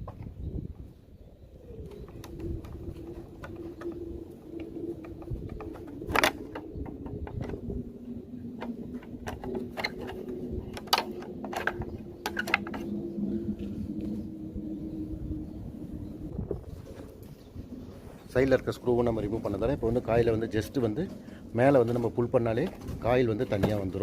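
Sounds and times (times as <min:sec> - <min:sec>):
low steady hum: 0:00.0 - 0:24.0
hand tools clicking on metal and plastic: 0:01.9 - 0:07.6, 0:08.6 - 0:12.9.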